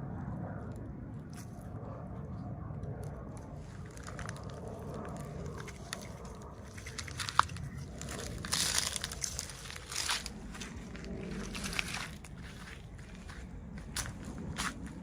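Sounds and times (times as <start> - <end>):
plastic packaging crinkling: 3.7 - 15.0.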